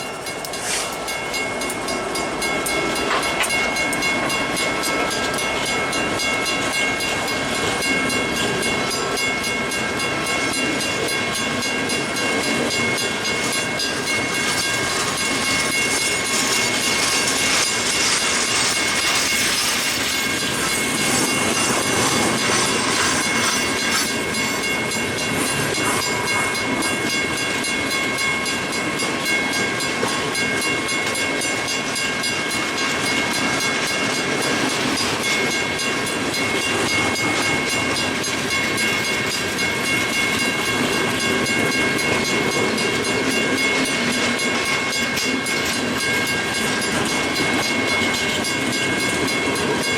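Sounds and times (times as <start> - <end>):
freight train wheels rumbling: 0.0 - 49.9.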